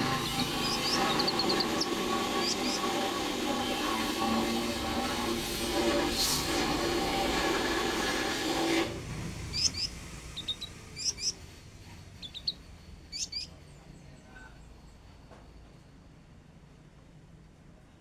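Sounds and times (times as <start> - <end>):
songbird chirping: 0.0 - 4.1, 9.1 - 14.4
loud steady noise with held tones: 0.0 - 16.0.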